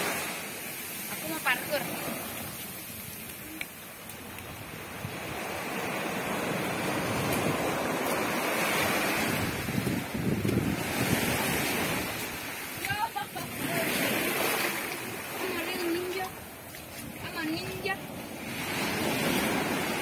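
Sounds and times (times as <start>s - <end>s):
ocean surf on a beach: 0.0s - 20.0s.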